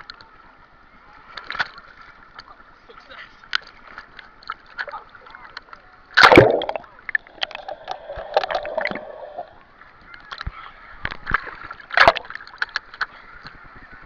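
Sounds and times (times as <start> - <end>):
sharp splashes: 6.2 - 9.5
water sloshing and splashing: 6.2 - 10.4, 11.1 - 13.1.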